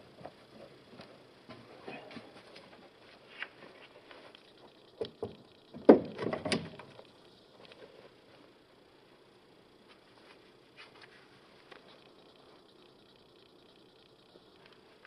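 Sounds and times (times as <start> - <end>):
hard parts knocking and clattering: 5.0 - 6.9.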